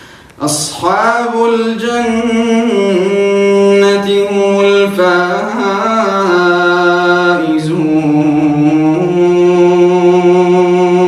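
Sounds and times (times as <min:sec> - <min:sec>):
man reciting melodically: 0:00.4 - 0:11.0.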